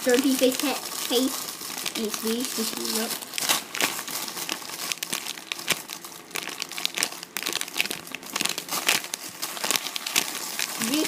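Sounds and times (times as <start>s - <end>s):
foam toy crinkling: 0.0s - 11.0s.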